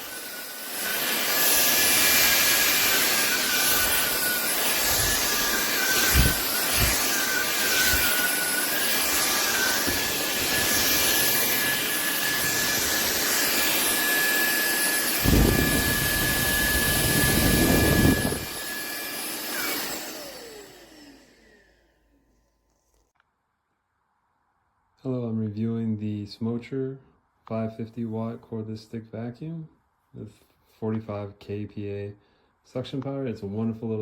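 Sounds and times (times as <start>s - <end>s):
stick vacuum running: 0.0s - 22.3s.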